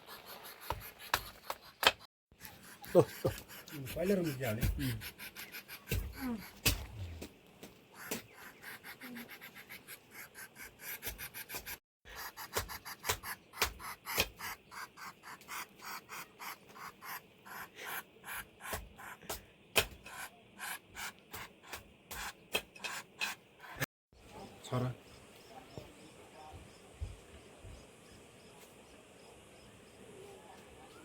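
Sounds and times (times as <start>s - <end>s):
rapid rasping strokes: 0.0s - 19.4s.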